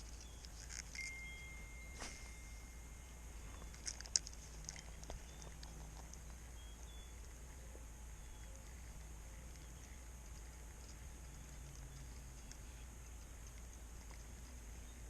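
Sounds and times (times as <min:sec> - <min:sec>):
steady low hum: 0:00.0 - 0:15.0
thin steady whistle: 0:01.0 - 0:03.7
sharp clicks and ticks: 0:03.5 - 0:07.4, 0:08.4 - 0:14.5.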